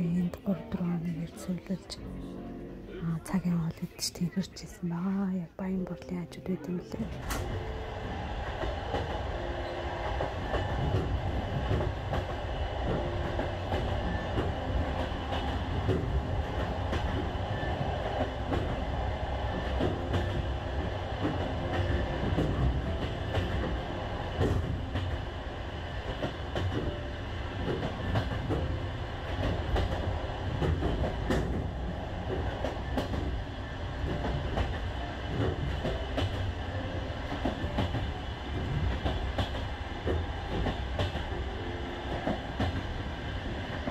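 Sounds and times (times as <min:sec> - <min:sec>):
train wheels rumbling on rails: 0:07.0 - 0:43.9.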